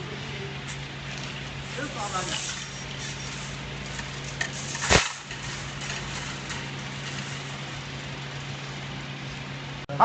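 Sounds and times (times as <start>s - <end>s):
baler low hum: 0.0s - 10.0s.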